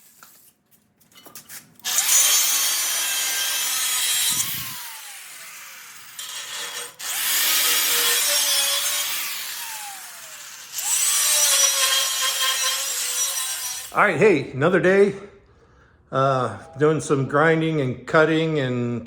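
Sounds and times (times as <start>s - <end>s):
angle grinder on steel: 1.8s - 14.0s.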